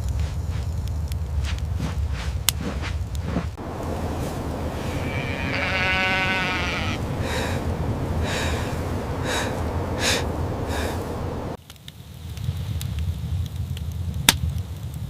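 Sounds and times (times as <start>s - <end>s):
low rumble: 0.0s - 11.6s
sheep bleating: 4.0s - 9.2s.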